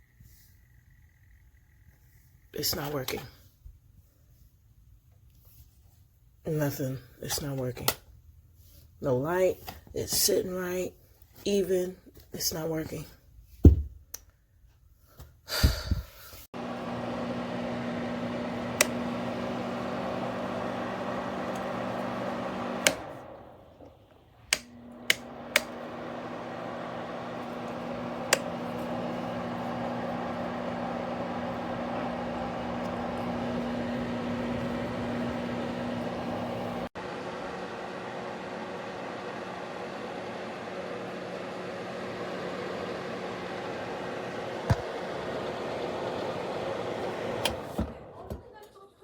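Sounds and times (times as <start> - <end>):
space heater fan humming: 16.6 - 48.6.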